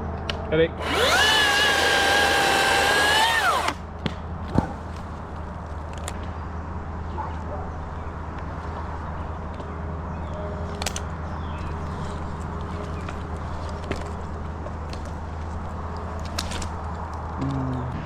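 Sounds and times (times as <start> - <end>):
chainsaw whining: 0.8 - 3.8.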